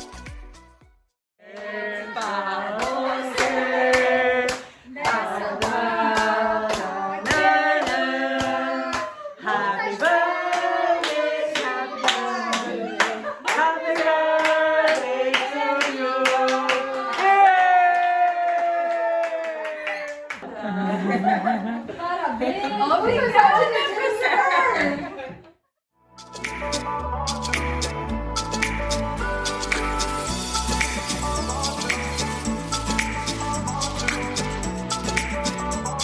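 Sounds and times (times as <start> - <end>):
group singing: 1.4 - 17.2, 28.6 - 36.0
hand clapping: 2.2 - 9.1, 28.5 - 29.0, 29.6 - 30.0, 30.7 - 33.4, 34.0 - 35.7.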